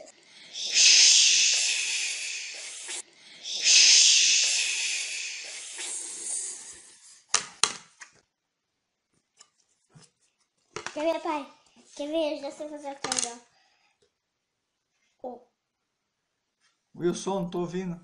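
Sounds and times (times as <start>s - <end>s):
child making shhh sound: 0.0s - 7.2s.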